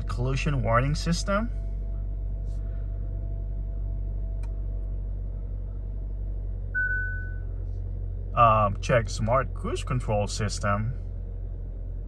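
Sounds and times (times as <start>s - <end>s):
car engine idling: 0.0s - 12.0s
warning chime: 6.8s - 7.5s.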